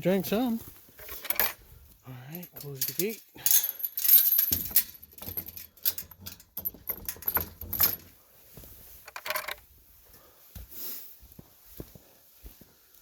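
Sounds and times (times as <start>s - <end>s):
metal chain rattling against gate: 1.0s - 1.6s, 2.3s - 8.1s, 9.1s - 9.6s.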